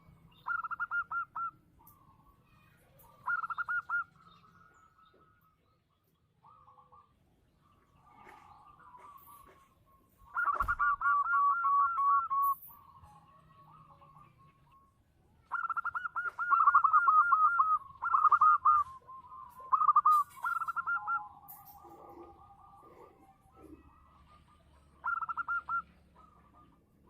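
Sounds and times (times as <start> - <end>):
dove cooing: 0.0 - 2.1, 3.0 - 5.3, 10.2 - 14.9, 15.5 - 26.9.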